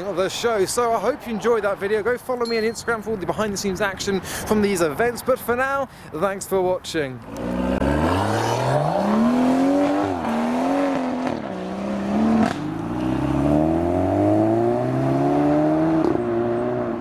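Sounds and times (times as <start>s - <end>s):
car engine accelerating hard: 7.3s - 17.0s.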